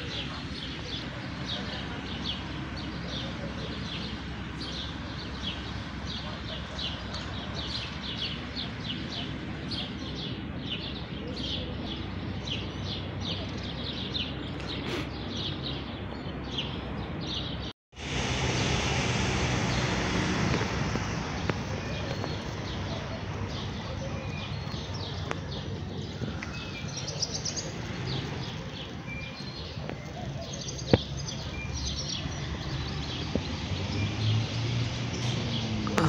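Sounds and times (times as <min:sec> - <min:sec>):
sparrows chirping: 0:00.0 - 0:17.7, 0:18.4 - 0:36.0.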